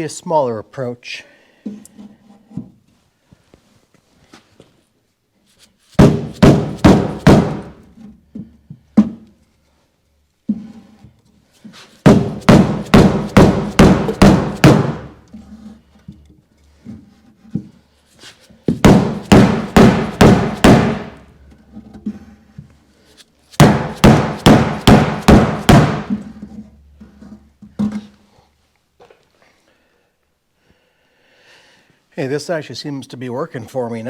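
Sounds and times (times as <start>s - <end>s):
hammer blows on steel door panel: 6.0s - 7.8s, 12.1s - 15.2s, 18.8s - 21.2s, 23.6s - 26.2s.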